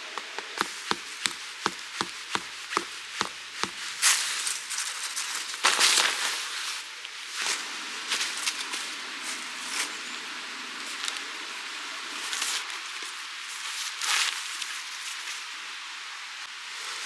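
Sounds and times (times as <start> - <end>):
sharp wooden knocks: 0.2 - 3.9.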